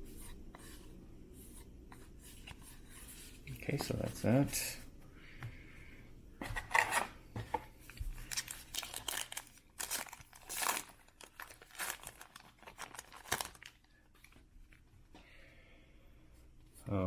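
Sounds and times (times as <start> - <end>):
wrapper being torn and crinkled: 8.2 - 14.4.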